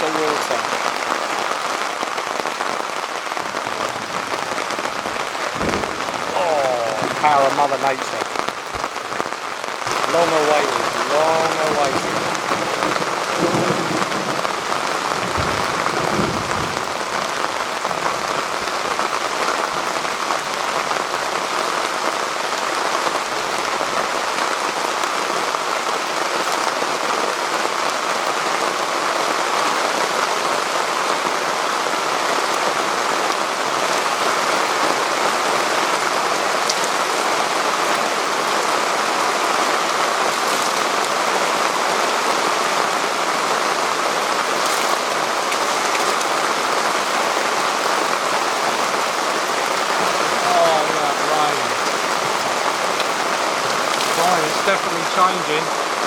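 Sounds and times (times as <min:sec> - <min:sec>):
heavy rain drumming on a tarp: 0:00.0 - 0:56.0
low thunder rumble: 0:03.5 - 0:07.8, 0:11.9 - 0:18.0.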